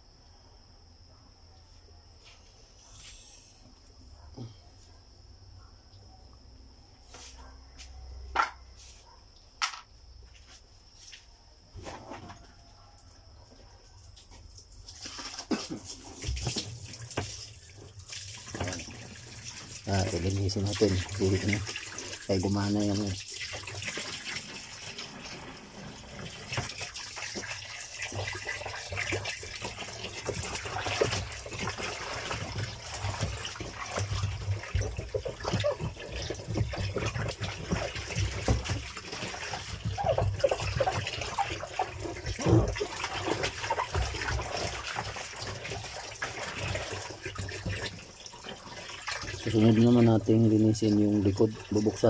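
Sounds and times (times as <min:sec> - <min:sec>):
part knocking and clattering: 0:08.3 - 0:08.6, 0:09.6 - 0:09.9
water running from tap: 0:14.6 - 0:52.0.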